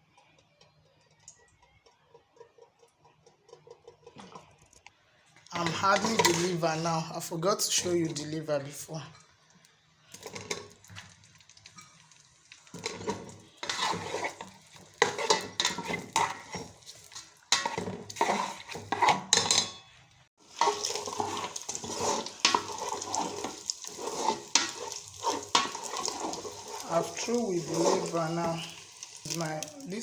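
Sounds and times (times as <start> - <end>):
liver sizzling in oil: 9.7 - 19.7, 20.4 - 30.0
metal spoon scraping a pot: 12.7 - 29.5.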